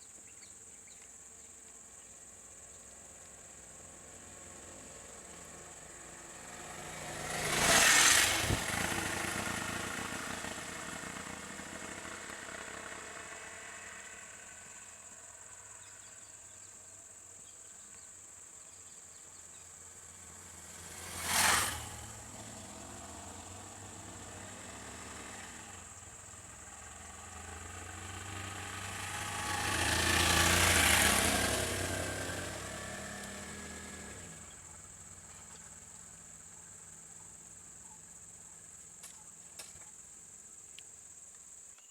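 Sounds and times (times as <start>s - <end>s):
high drone of insects: 0.0s - 41.9s
vehicles passing by: 2.5s - 18.0s, 18.7s - 40.6s.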